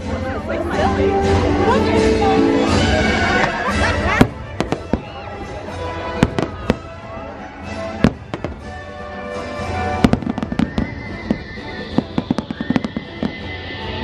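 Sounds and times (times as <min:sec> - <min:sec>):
show music: 0:00.0 - 0:14.0
fireworks bangs: 0:03.2 - 0:14.0.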